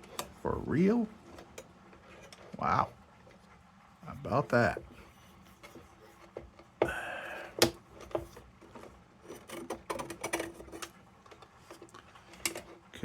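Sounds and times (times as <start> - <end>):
metal parts clicking and rattling: 8.0 - 12.8.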